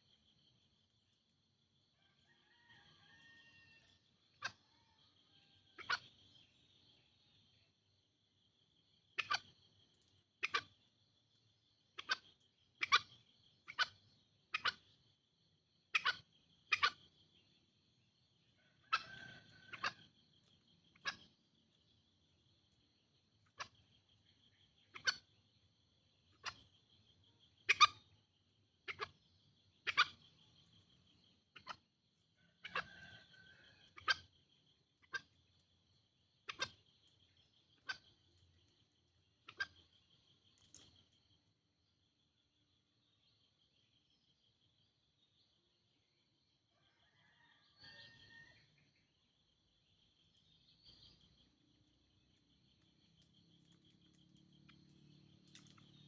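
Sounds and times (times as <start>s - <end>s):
junglefowl calling: 5.7s - 6.2s, 9.2s - 9.5s, 10.4s - 10.7s, 12.0s - 13.1s, 15.9s - 17.0s, 18.8s - 20.1s, 24.8s - 25.3s, 27.6s - 28.1s, 29.8s - 30.3s, 32.6s - 34.3s, 36.4s - 36.9s.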